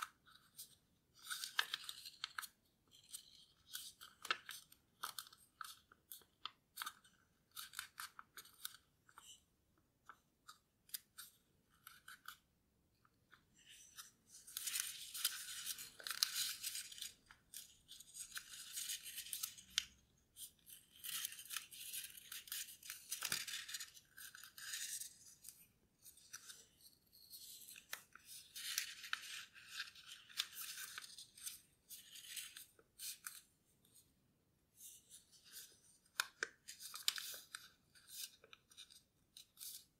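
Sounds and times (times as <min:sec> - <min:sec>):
paper rustling and crinkling: 0:13.8 - 0:19.9, 0:20.8 - 0:33.4, 0:35.0 - 0:39.9.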